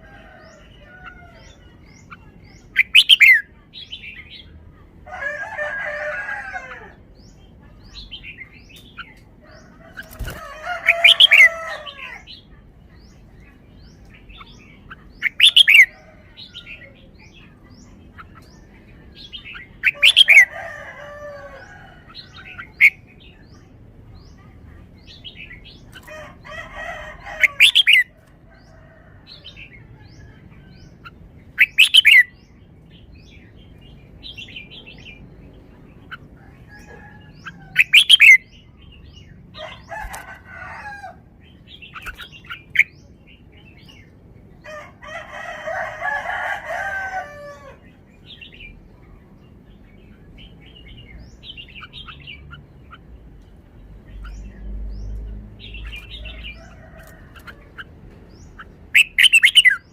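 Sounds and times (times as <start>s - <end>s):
bird warbling song: 0.0s - 4.5s, 7.2s - 44.2s, 47.6s - 59.9s.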